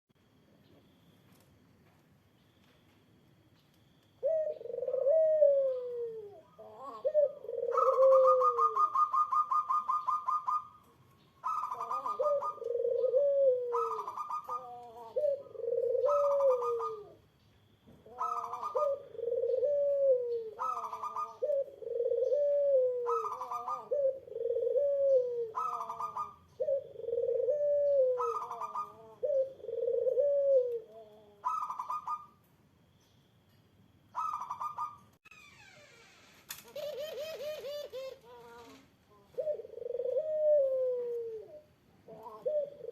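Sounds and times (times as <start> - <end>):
higher trilled dove call: 4.2 - 17.2, 18.1 - 32.4, 34.1 - 35.0
low dove coo: 4.2 - 17.3, 18.0 - 32.3, 36.6 - 42.9.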